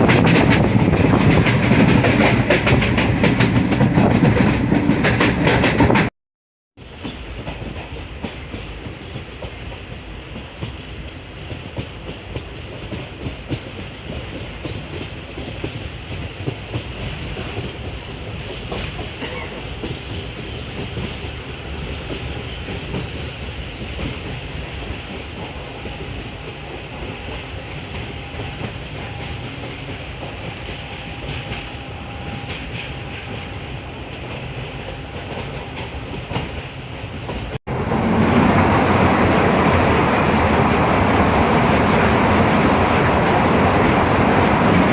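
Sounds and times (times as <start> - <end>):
train wheels clattering on rails: 0.0 - 6.1, 6.8 - 44.9.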